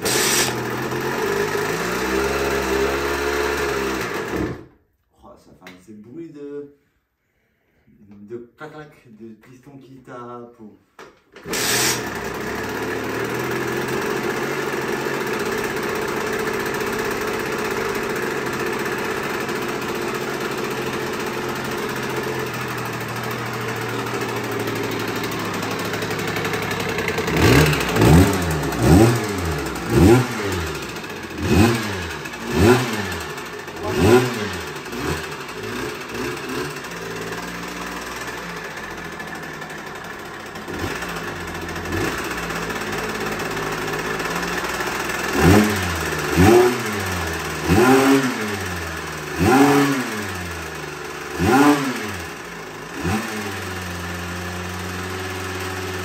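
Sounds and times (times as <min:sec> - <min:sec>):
two-stroke moped engine revving: 0:00.0 - 0:04.7, 0:11.4 - 0:56.0
engine clacking: 0:11.4 - 0:51.6.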